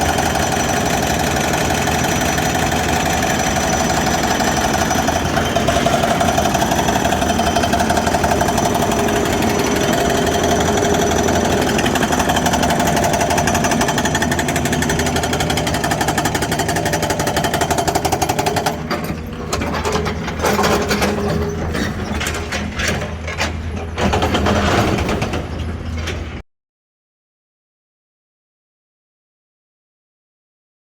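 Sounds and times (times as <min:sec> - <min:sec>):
hydraulic breaker hammering: 0:00.0 - 0:25.8
excavator engine: 0:00.0 - 0:26.4.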